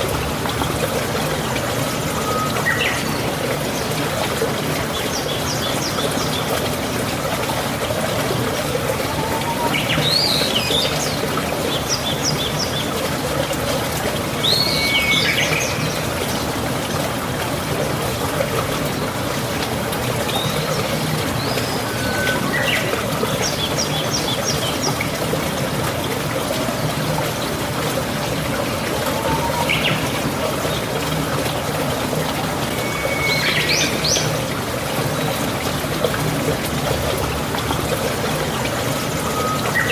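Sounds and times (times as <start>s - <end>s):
flowing water rushing: 0.0s - 39.9s
songbird calling: 29.2s - 30.0s.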